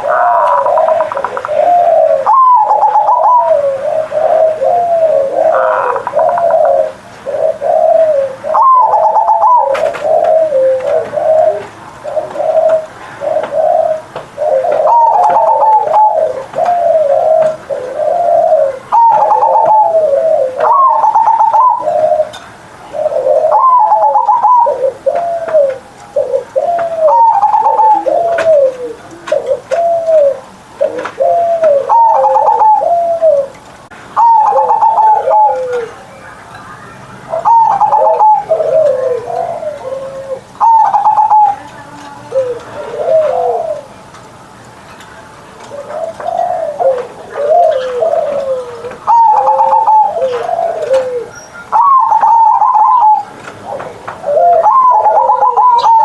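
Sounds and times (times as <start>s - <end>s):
dove cooing song: 0.0s - 44.2s, 45.1s - 56.0s.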